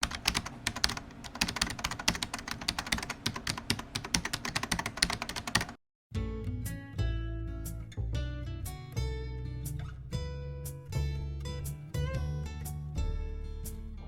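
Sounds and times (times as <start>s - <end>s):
rapid keyboard typing: 0.0s - 5.8s
guitar music: 6.2s - 14.0s.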